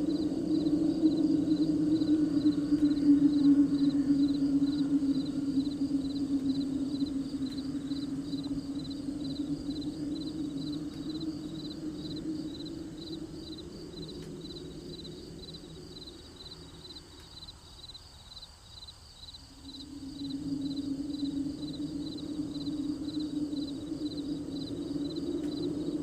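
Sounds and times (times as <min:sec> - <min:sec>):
low steady drone: 0:00.0 - 0:17.7, 0:19.5 - 0:26.0
crickets chirping: 0:00.0 - 0:26.0.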